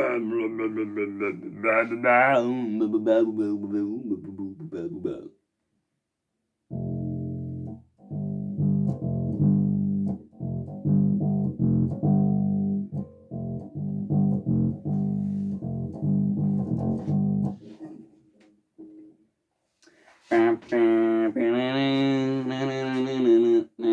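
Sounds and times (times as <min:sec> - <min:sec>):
bass guitar notes: 0:06.7 - 0:17.6.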